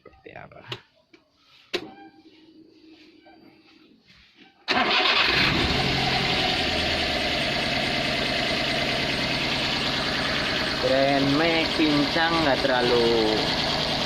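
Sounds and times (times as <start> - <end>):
engine starting and idling roughly: 4.7 - 14.0.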